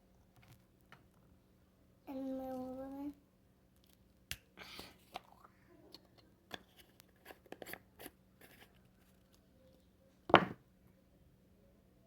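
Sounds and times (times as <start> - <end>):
knock on table: 10.3 - 10.6.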